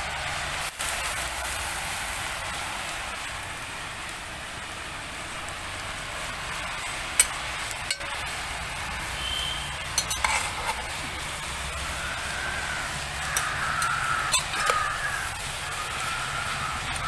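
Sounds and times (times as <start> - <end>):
food sizzling in a pot: 0.0 - 17.0
bird calling: 9.0 - 10.7, 11.3 - 17.0.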